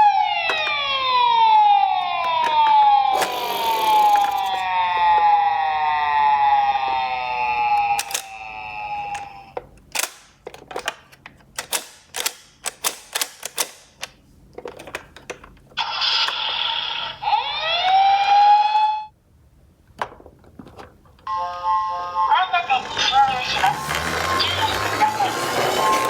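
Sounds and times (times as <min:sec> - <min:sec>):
electronic toy siren: 0:00.0 - 0:09.5, 0:15.8 - 0:19.1, 0:21.3 - 0:26.0.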